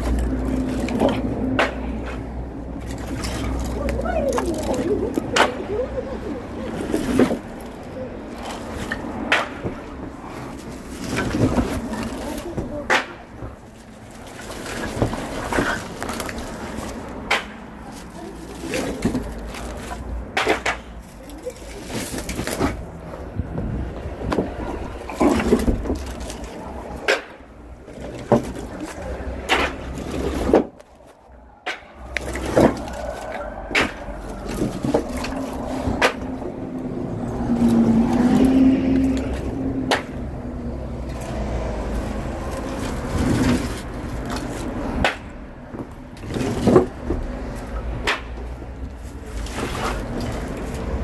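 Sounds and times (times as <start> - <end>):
firewood knocking and clattering: 6.8 - 38.4, 42.2 - 51.0
steady low rumble: 19.2 - 46.2.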